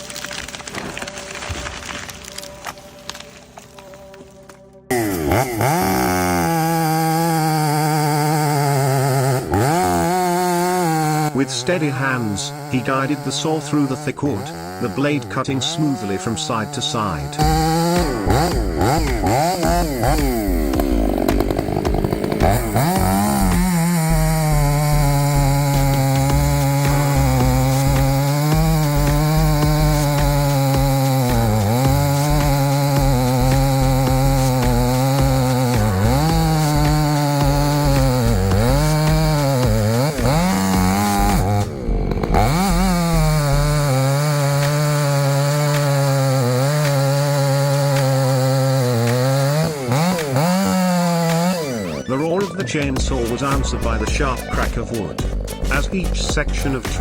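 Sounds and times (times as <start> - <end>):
chainsaw engine revving: 4.9 - 57.0.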